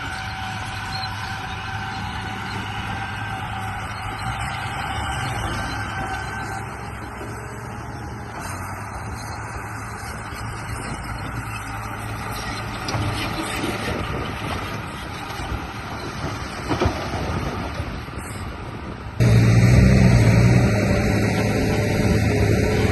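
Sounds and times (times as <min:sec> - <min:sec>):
toy bulldozer motor drone: 0:00.0 - 0:16.6.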